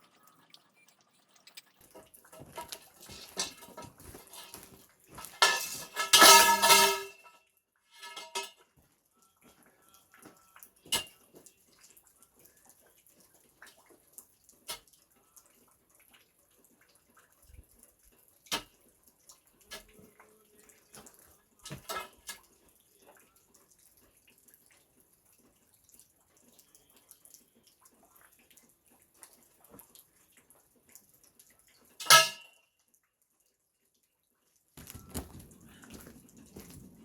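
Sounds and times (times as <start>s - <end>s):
objects knocking and clattering: 1.4s - 7.3s, 8.0s - 8.6s, 34.8s - 37.0s.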